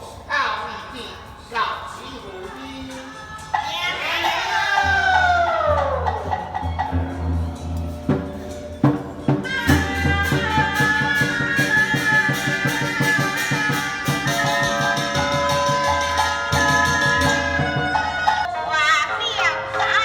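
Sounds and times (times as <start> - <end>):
rapid percussion strikes: 2.9 - 18.5
melody instruments holding long notes: 4.7 - 19.0.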